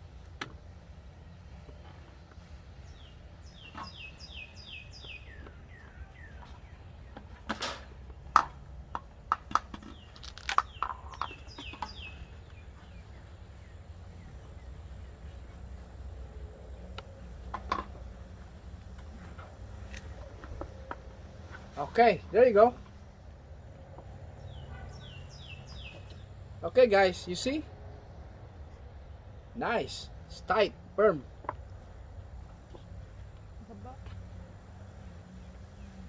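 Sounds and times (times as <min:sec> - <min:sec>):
bird chirping: 0:01.2 - 0:08.3, 0:09.7 - 0:22.8, 0:23.8 - 0:27.6.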